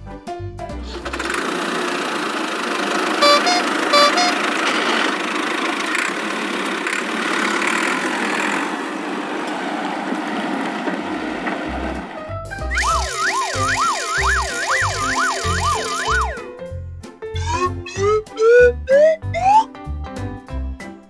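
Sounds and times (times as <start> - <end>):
cartoon vehicle engine: 0.8 - 16.5, 17.4 - 19.7
short horn beeps: 3.2 - 4.6.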